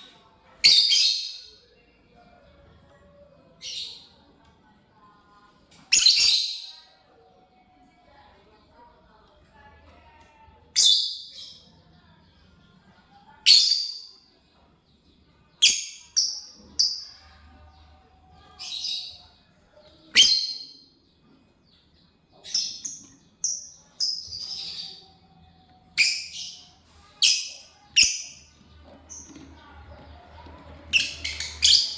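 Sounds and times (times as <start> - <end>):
bird high-pitched chirps: 20.1 - 21.0, 25.9 - 29.7, 30.9 - 31.9.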